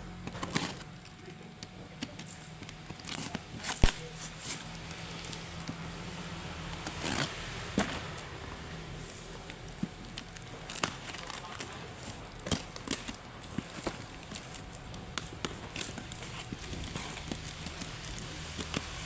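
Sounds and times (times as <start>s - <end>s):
package unboxing crackling: 0.2s - 5.8s, 9.3s - 19.0s.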